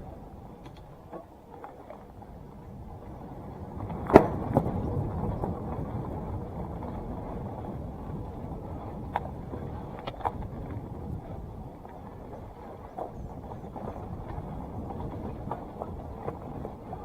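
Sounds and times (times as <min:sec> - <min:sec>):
bike tyres rolling on dirt: 0:00.0 - 0:17.0.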